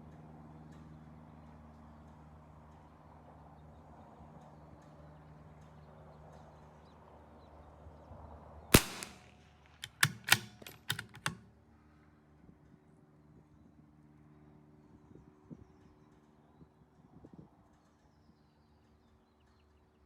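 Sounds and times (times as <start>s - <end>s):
rifle shot: 8.8s - 11.4s
metallic clicks of rifle bolt: 8.8s - 11.5s.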